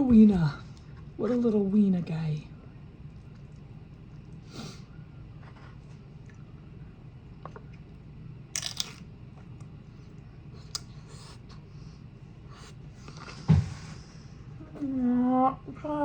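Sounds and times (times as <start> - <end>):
low steady hum: 0.0 - 16.0
crunchy eating crackle: 3.0 - 11.6.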